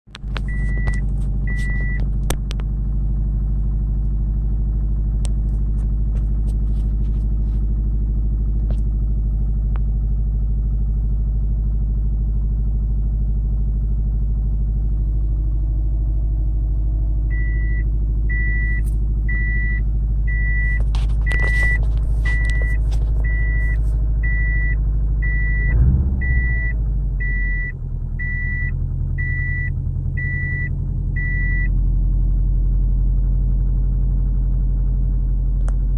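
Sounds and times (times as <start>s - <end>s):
vehicle engine idling: 0.1s - 35.9s.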